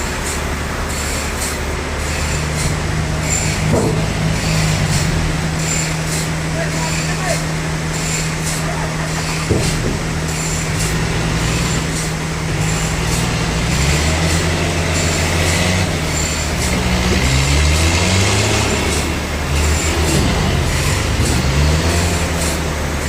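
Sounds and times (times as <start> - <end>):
sawmill machinery whirring: 0.0 - 23.0.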